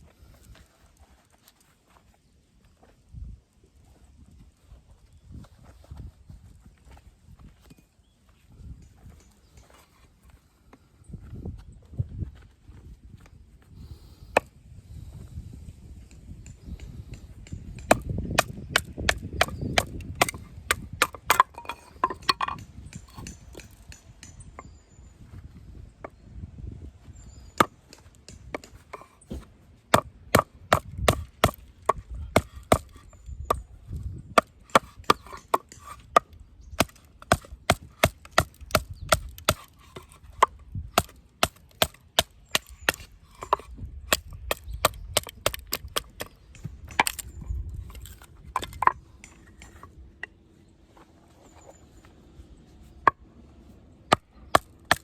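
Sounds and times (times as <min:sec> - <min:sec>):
baton striking knife splitting wood: 0:17.8 - 0:24.4, 0:27.6 - 0:33.1, 0:34.4 - 0:47.3, 0:54.1 - 0:55.0.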